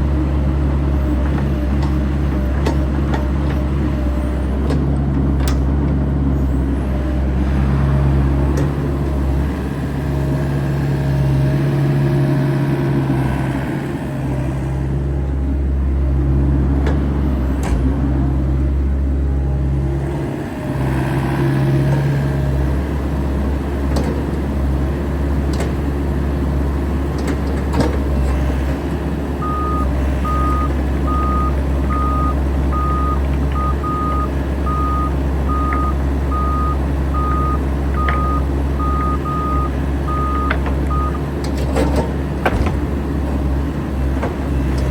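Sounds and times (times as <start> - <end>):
excavator diesel engine running: 0.0 - 44.9
reversing alarm beeps: 29.4 - 41.2.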